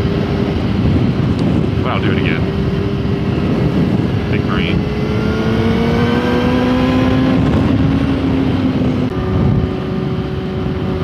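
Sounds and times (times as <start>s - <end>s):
motorcycle engine running: 0.0s - 11.0s
wind rushing: 0.0s - 11.0s.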